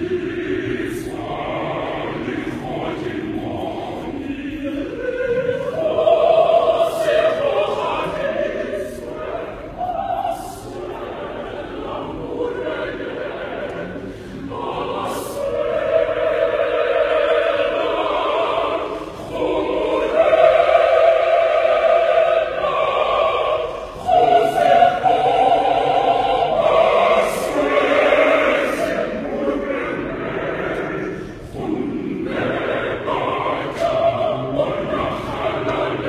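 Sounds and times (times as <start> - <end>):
choir singing held chords: 0.0 - 36.0
choir breaths: 12.0 - 36.0.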